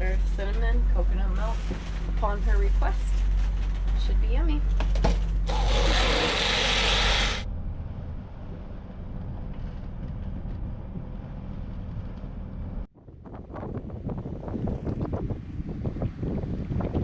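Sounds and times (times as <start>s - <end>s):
blender motor whirring: 5.5s - 7.4s
wind noise on microphone: 7.9s - 17.0s.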